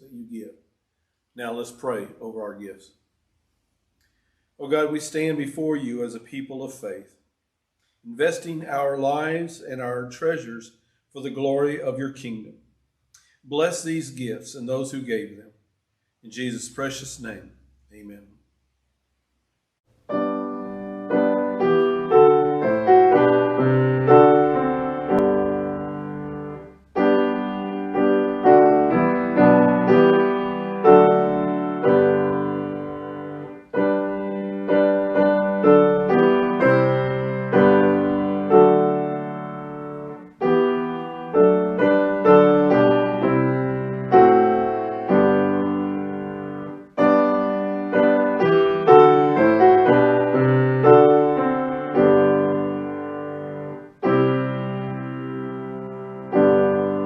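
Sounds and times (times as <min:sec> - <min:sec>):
solo piano music: 0:20.1 - 0:57.0.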